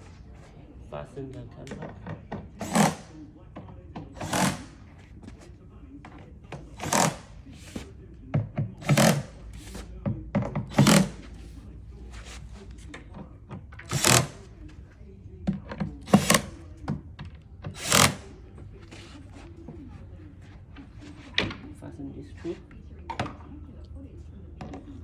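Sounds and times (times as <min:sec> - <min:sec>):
knocks and clatters of assembly: 0:01.5 - 0:05.4, 0:06.5 - 0:11.3, 0:12.8 - 0:14.4, 0:15.4 - 0:18.3.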